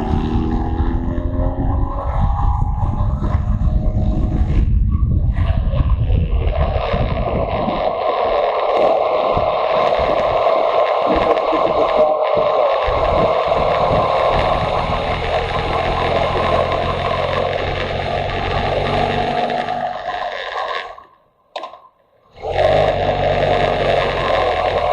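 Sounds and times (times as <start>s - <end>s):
motorcycle engine running: 0.0s - 5.2s, 12.8s - 20.1s, 22.4s - 24.9s
wind rushing over microphone: 0.0s - 20.2s.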